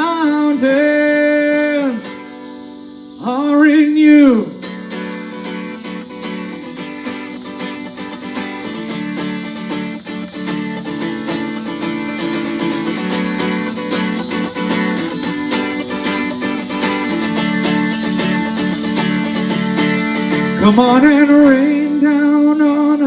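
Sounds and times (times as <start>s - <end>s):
person singing: 0.0s - 2.4s, 10.4s - 23.0s
strummed guitar: 0.0s - 23.0s.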